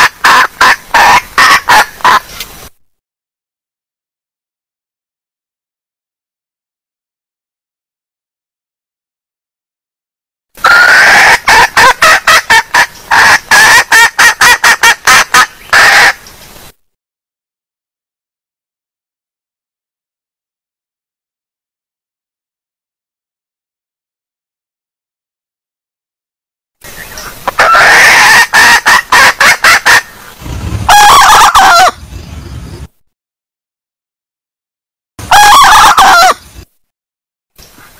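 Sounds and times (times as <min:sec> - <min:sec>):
hen calling and clucking: 0:00.0 - 0:02.5, 0:10.6 - 0:16.2, 0:26.8 - 0:32.2, 0:35.2 - 0:36.6.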